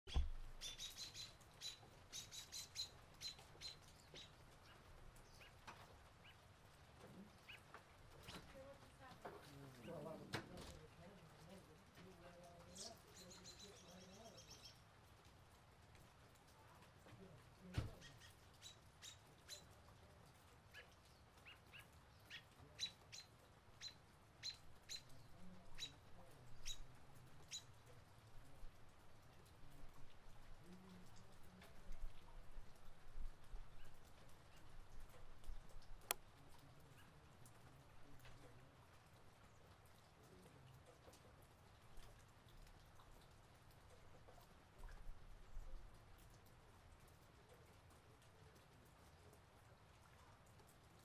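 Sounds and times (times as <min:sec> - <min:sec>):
low knock: 0:00.1 - 0:00.5
faint high bird chirps: 0:00.1 - 0:04.3, 0:12.7 - 0:14.8
faint bird chirping: 0:00.1 - 0:08.9, 0:11.4 - 0:14.9, 0:17.9 - 0:28.8, 0:29.4 - 0:38.6.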